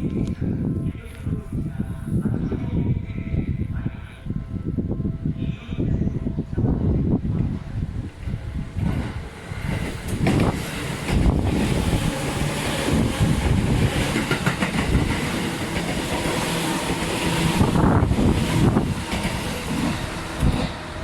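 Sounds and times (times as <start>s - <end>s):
train wheels rumbling on rails: 6.6s - 21.0s.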